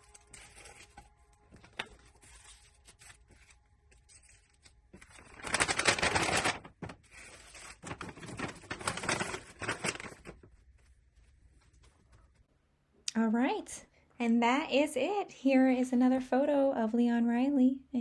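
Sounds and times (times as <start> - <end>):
wrapping material crinkling: 0.0 - 12.2.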